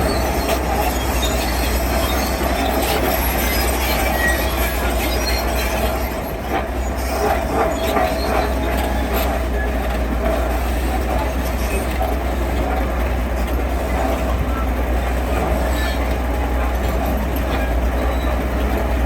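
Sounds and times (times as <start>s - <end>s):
metallic squeal: 0.0s - 9.9s, 15.2s - 18.6s
heavy machine engine drone: 0.0s - 19.0s.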